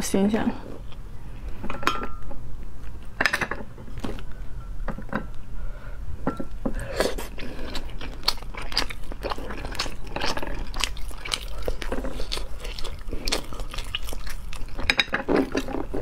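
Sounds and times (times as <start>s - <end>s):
person chewing: 6.5s - 16.0s.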